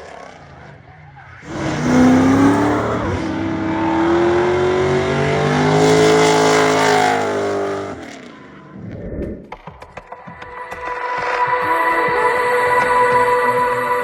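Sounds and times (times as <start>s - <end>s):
car engine at high revs: 0.0s - 9.1s.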